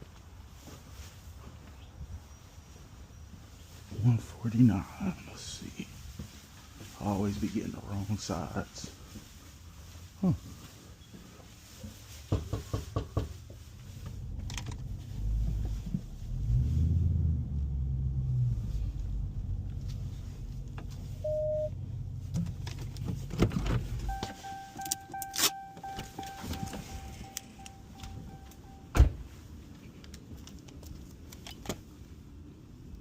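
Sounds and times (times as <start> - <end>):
car low rumble: 3.0 - 33.0
electronic chime tone: 21.2 - 21.7, 24.1 - 28.9
car clicks: 22.3 - 28.6.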